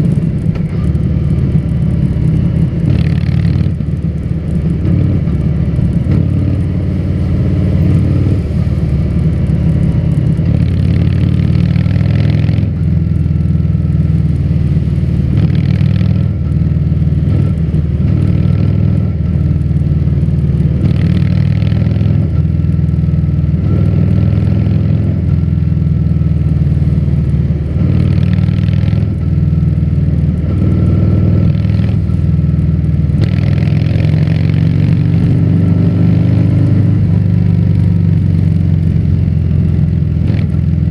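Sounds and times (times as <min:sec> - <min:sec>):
motorcycle exhaust rumbling: 0:00.0 - 0:40.9.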